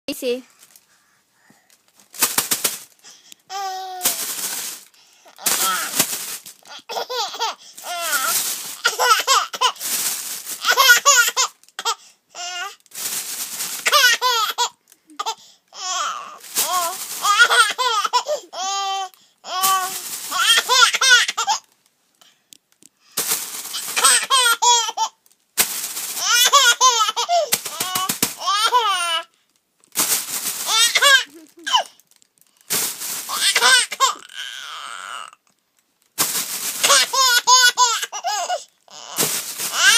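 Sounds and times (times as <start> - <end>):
plastic crinkling: 0.4 - 39.9
baby giggling: 6.7 - 7.6, 30.7 - 31.9
high-pitched laughter: 30.8 - 31.9.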